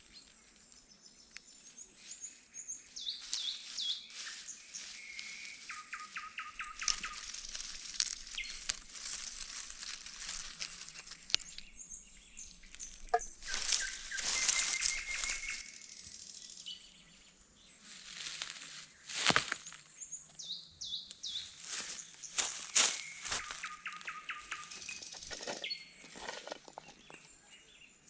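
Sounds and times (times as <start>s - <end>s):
small birds chirping: 0.0s - 28.0s
rustling and scraping: 1.7s - 11.8s, 12.6s - 15.6s, 21.6s - 27.4s.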